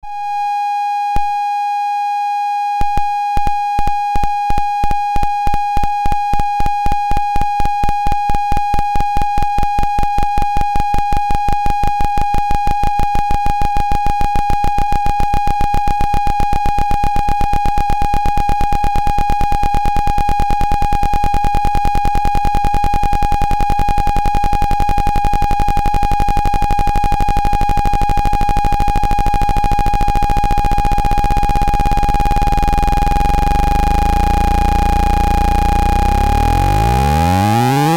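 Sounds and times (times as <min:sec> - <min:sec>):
high-pitched electronic beep: 0:27.5 - 0:37.9.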